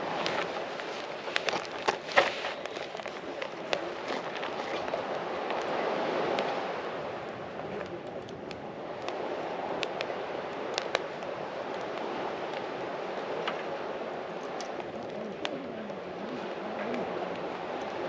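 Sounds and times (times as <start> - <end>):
sharp pops and crackles: 0.0 - 18.0
steady rushing noise: 0.0 - 18.0.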